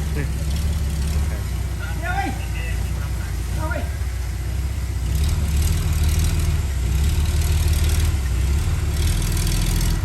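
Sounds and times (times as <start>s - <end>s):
diesel engine rumbling: 0.0s - 10.0s.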